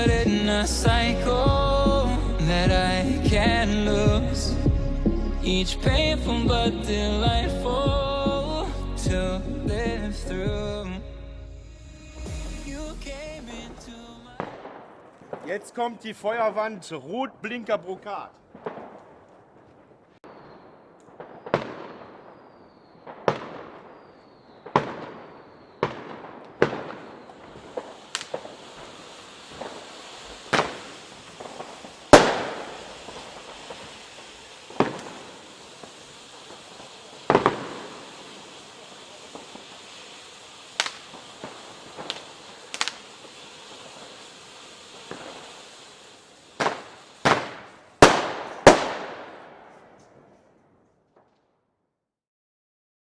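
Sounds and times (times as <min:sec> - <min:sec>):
steady hiss: 0:00.0 - 0:05.4, 0:22.7 - 0:50.2
firework bangs: 0:00.0 - 0:11.0, 0:11.8 - 0:51.4.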